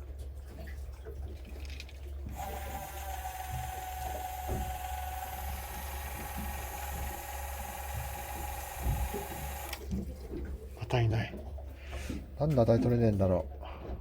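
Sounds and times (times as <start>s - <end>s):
constant low hum: 0.0s - 14.0s
fishing reel motor whine: 2.2s - 10.0s.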